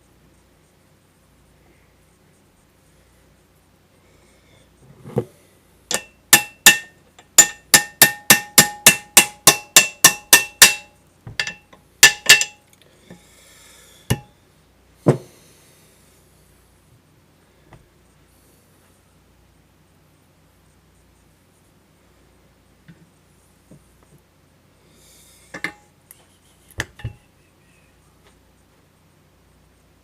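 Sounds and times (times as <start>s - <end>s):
hammer striking metal: 5.9s - 12.6s.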